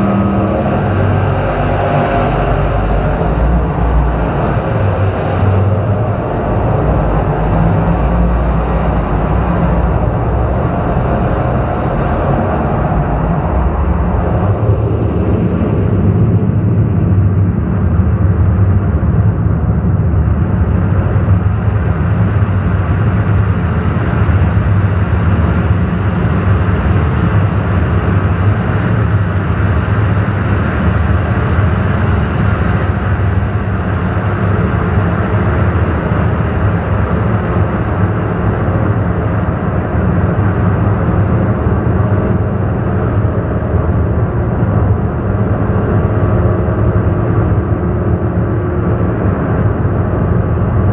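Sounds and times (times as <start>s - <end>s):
synthesizer drone music: 0.0s - 17.0s, 37.7s - 50.9s.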